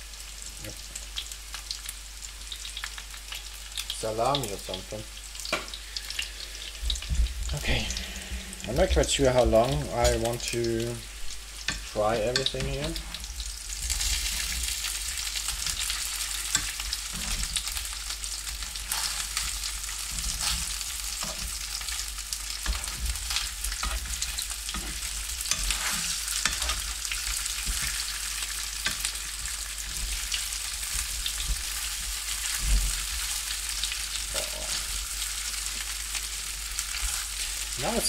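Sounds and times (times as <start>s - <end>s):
food sizzling in hot oil: 0.0s - 38.0s
utensil scraping frying pan: 7.6s - 35.8s, 36.8s - 38.0s.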